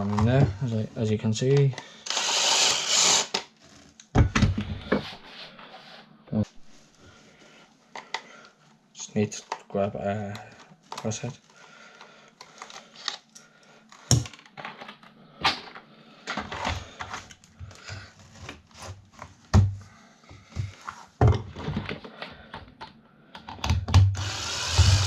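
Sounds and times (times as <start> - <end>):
clatter of plastic and metal parts: 9.4 - 19.7, 20.6 - 24.1.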